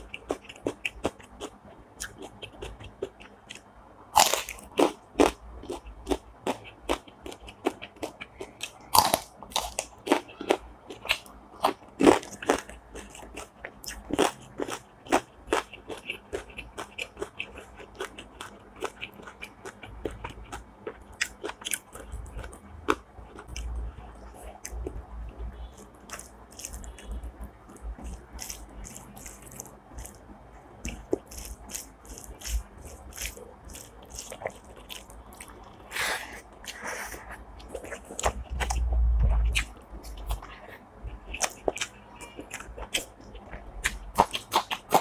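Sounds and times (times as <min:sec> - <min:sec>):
person chewing with crunches: 0:00.0 - 0:45.0.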